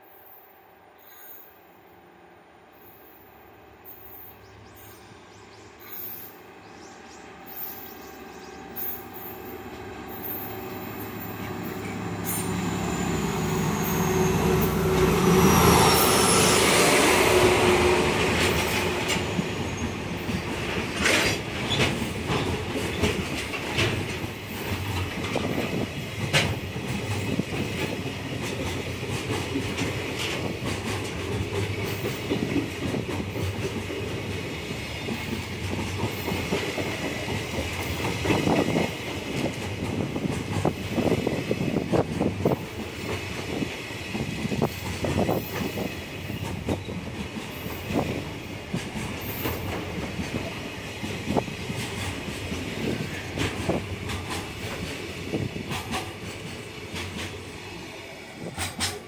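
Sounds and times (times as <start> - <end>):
diesel locomotive engine: 0.0 - 59.0
train wheels clacking over rail joints: 18.0 - 57.6, 58.4 - 59.0.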